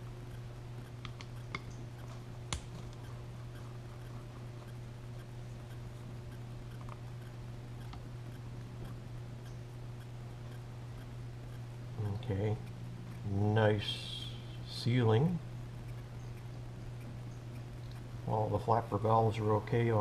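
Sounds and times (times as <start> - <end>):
steady low hum: 0.0 - 20.0
light clicks and taps of tools: 1.0 - 1.8.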